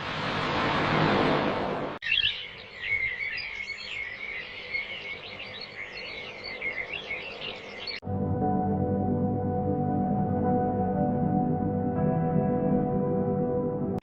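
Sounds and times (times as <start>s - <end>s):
birds chirping and singing: 2.0s - 8.0s
ambient music with held tones: 8.0s - 14.0s.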